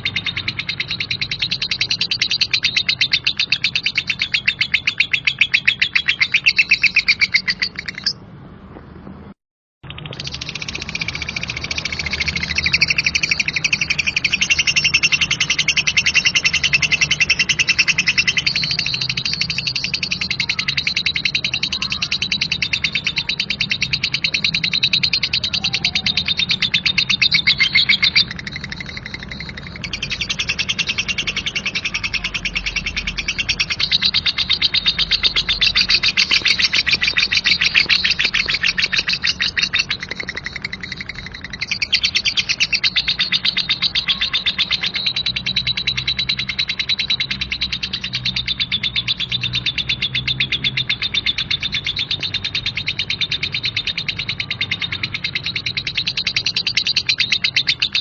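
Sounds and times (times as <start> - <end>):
lovebird chattering trill: 0.0 - 8.2, 9.8 - 58.0.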